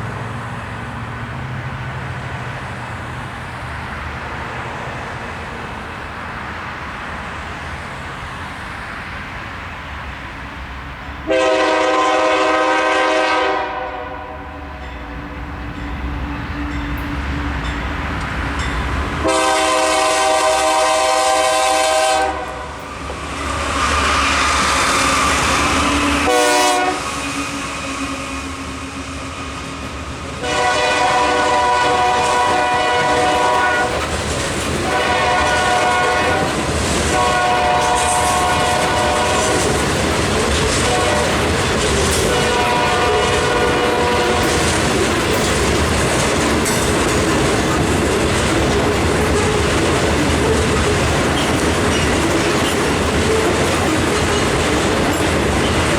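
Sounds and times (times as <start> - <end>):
train rumbling by: 0.0 - 55.9
locomotive horn blasts: 11.3 - 14.8, 19.2 - 22.8, 25.8 - 27.3, 30.4 - 34.1, 34.8 - 39.8, 40.7 - 41.5, 42.2 - 44.6.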